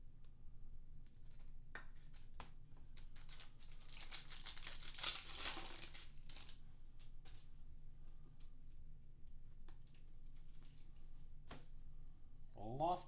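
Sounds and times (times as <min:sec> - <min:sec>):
foil wrapper crinkling and tearing: 0:02.9 - 0:06.6.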